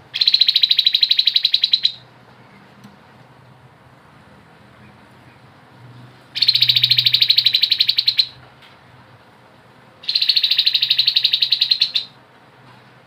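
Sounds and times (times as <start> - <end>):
bird rapid trills: 0.1 - 2.0, 6.4 - 8.4, 10.0 - 12.2.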